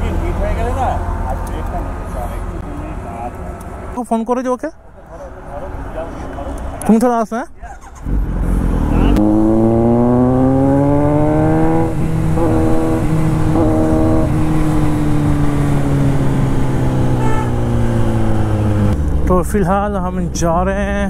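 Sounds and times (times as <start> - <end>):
motorcycle engine accelerating: 7.6 - 19.7.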